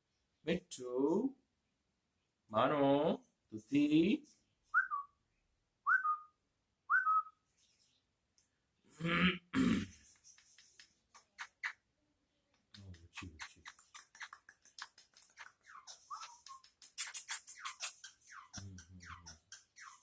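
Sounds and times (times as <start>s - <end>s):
short clicks and chirps: 12.6s - 20.0s.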